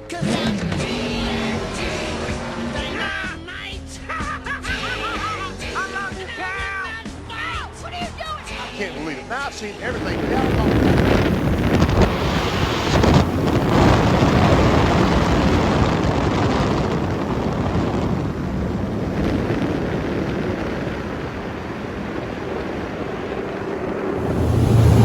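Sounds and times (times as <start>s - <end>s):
water rushing: 9.6s - 15.8s, 24.2s - 25.0s
wind buffeting microphone: 9.7s - 25.0s
outboard motor running: 24.2s - 25.0s.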